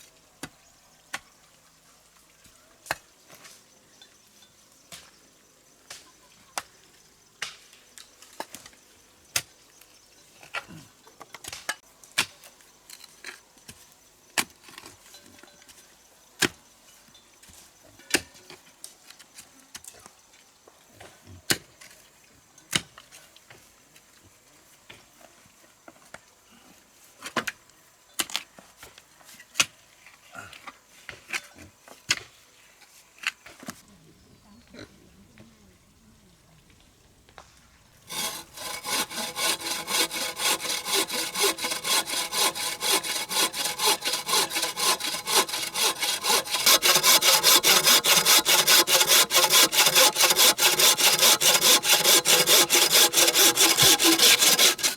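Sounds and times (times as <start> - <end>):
saw cutting through wood: 38.1 - 54.9.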